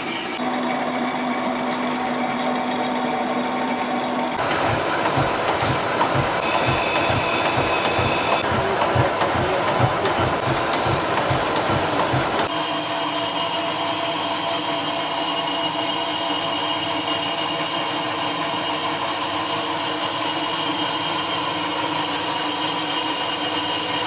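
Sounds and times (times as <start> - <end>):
cutting hiss: 4.4 - 12.5
machine whine: 4.4 - 16.8.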